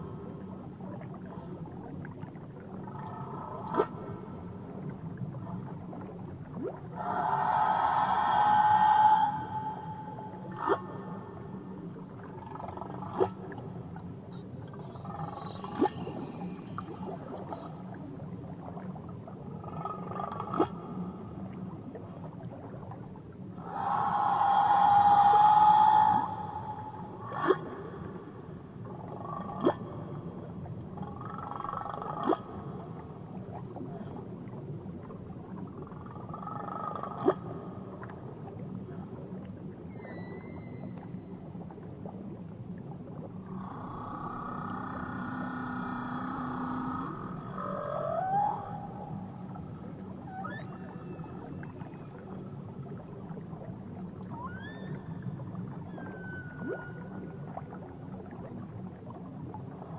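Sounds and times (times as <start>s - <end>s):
low underwater hum: 0.0s - 59.9s
whale song: 0.0s - 59.9s
whale upward-sweeping cries: 7.0s - 10.8s, 23.6s - 28.1s, 43.8s - 52.6s, 54.2s - 55.2s.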